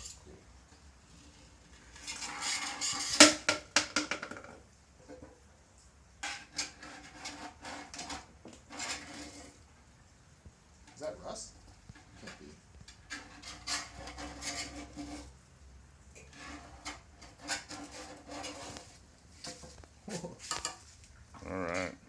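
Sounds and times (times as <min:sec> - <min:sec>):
paint scraped off metal tank: 0:01.1 - 0:03.5, 0:06.2 - 0:09.9, 0:11.9 - 0:15.5, 0:16.2 - 0:21.0.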